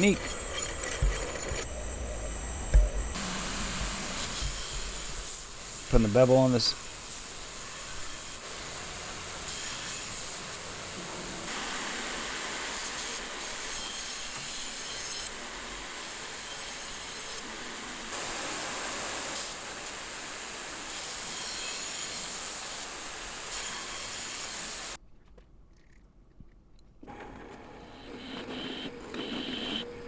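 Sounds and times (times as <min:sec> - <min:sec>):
blade grinding hiss: 0:03.0 - 0:25.0.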